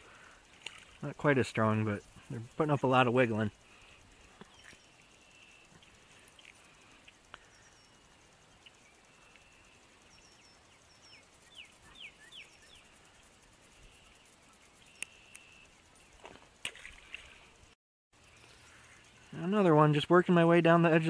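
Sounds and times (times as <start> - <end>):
birds chirping: 0.0 - 21.0
high bird trill: 7.4 - 16.2
sharp clicks: 14.9 - 15.6.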